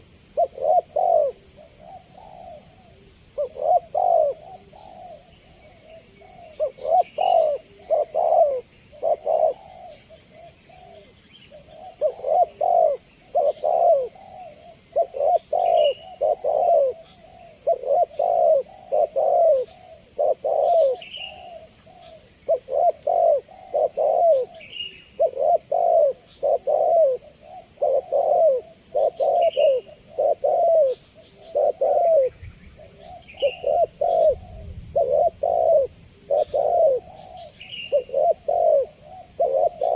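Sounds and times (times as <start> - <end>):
dove cooing: 0.0 - 39.9
steady high hiss: 23.7 - 39.9.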